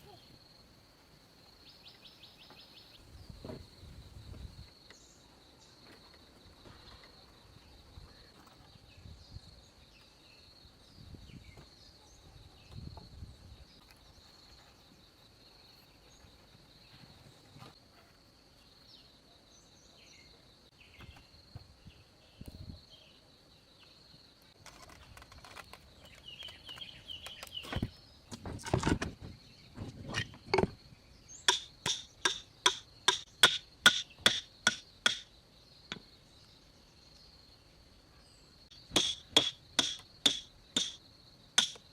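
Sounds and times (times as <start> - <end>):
insects droning: 0.0 - 41.9
ringing hammer blows: 38.9 - 41.0.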